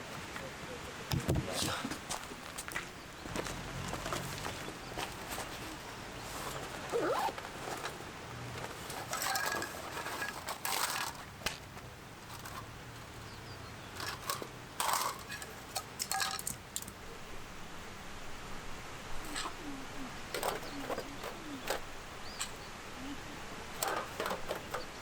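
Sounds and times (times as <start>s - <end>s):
light clicks clinks and scrapes: 7.6s - 11.6s, 14.0s - 17.0s.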